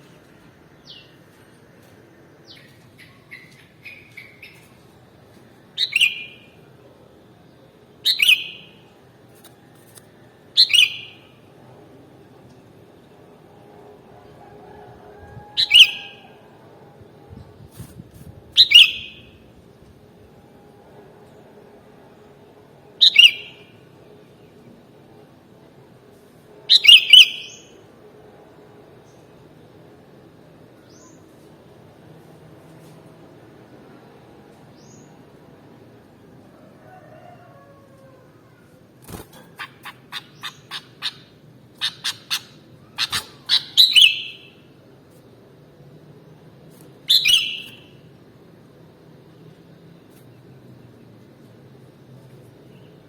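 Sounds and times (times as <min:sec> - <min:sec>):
bird chirping: 0:05.8 - 0:06.5, 0:08.0 - 0:08.8, 0:39.5 - 0:44.6, 0:47.1 - 0:48.0.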